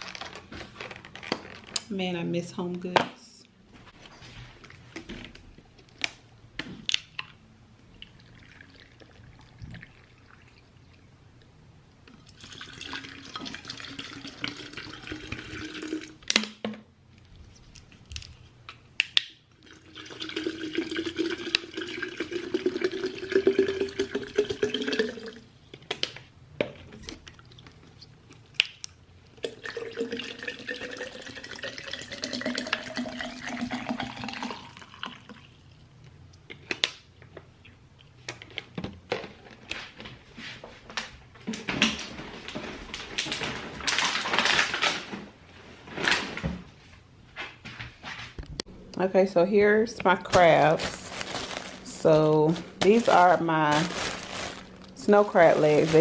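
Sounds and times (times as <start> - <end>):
water running into a glass pitcher: 12.2 - 16.2, 19.6 - 25.4, 29.4 - 35.6.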